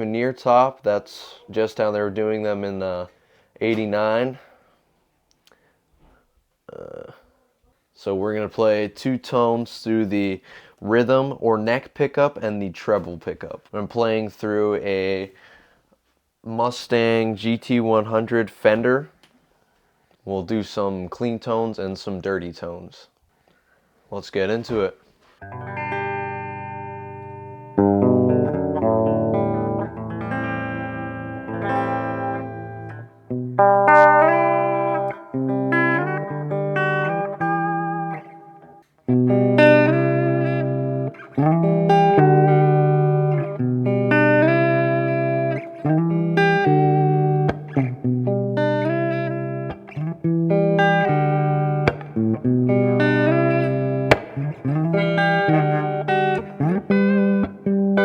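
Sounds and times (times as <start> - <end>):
electric guitar chords and notes: 25.4 - 58.0.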